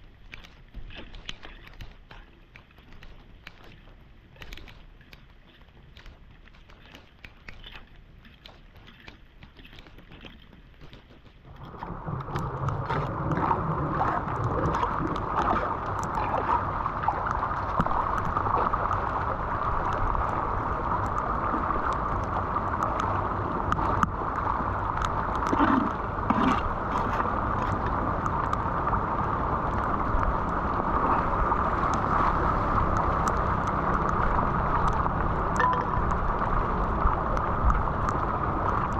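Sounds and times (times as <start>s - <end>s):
small water splashes: 0.0s - 38.9s
water rushing down storm drain: 11.3s - 38.9s.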